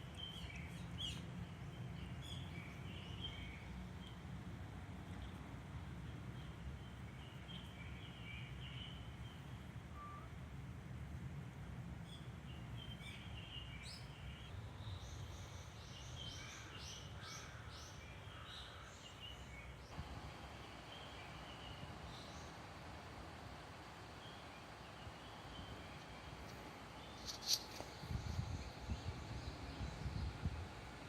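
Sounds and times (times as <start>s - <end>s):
small birds chirping: 0.0s - 10.4s, 12.0s - 31.0s
low background rumble: 19.6s - 31.0s.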